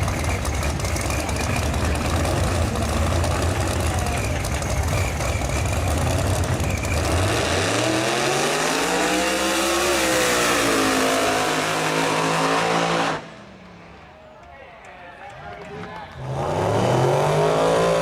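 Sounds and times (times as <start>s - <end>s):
drag race car engine at full throttle: 0.0s - 14.0s, 15.7s - 18.0s.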